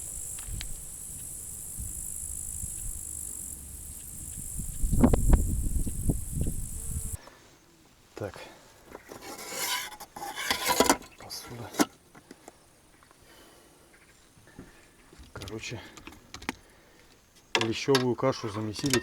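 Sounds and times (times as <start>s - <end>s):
crickets chirring: 0.0s - 7.2s
low rumble: 0.0s - 7.2s
scraping and rustling handling noises: 8.8s - 12.6s.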